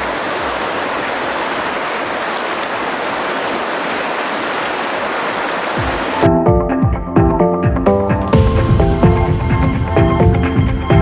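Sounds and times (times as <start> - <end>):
water rushing: 0.0 - 6.3, 7.9 - 11.0
music with a beat: 5.8 - 11.0.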